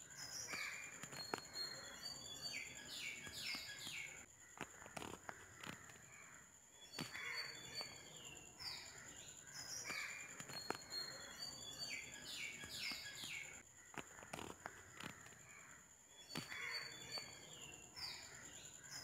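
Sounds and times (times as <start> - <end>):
birds chirping faintly: 0.0 - 19.0
sharp clicks: 0.4 - 1.8, 3.2 - 6.1, 9.6 - 11.1, 12.6 - 15.5.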